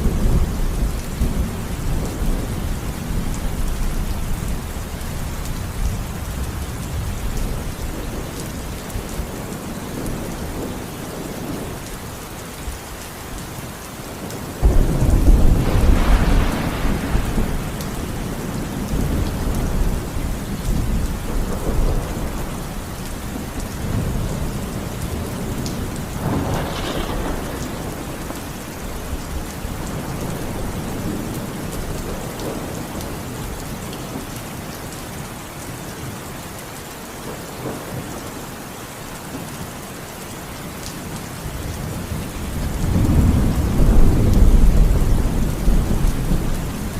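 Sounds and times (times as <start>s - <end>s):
steady rain falling: 0.0s - 46.9s
thunder rumbling: 14.2s - 33.6s, 41.6s - 46.9s
thunderclap: 14.6s - 22.5s, 25.2s - 32.7s.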